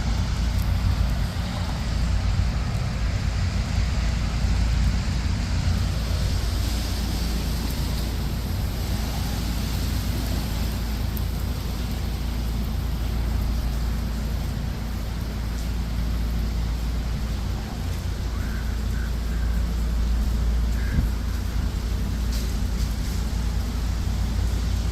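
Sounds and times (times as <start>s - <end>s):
rain hiss: 0.0s - 24.9s
traffic rumble: 0.0s - 24.9s.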